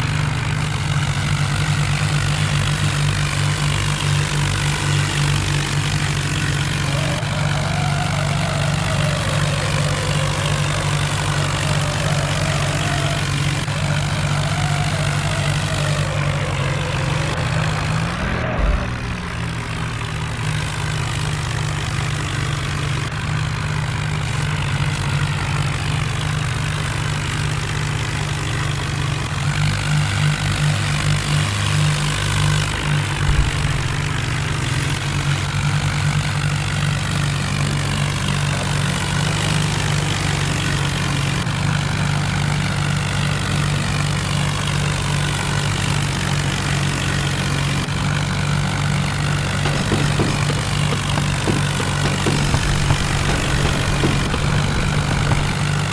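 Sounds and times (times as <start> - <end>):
tractor diesel engine running: 0.0 - 31.1, 32.4 - 35.4, 46.2 - 55.9.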